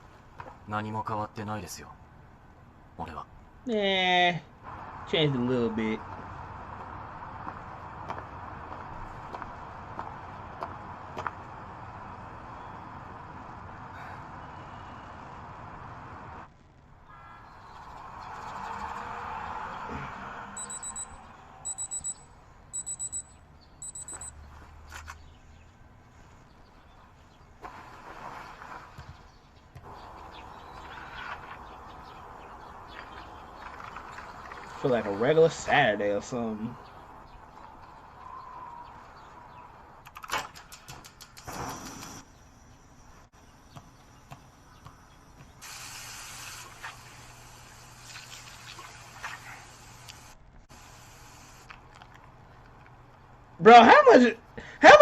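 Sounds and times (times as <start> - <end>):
digital alarm clock beeping: 20.6 - 24.4
quick clicks: 40.0 - 42.2
steady hiss with low hum: 41.5 - 55.0.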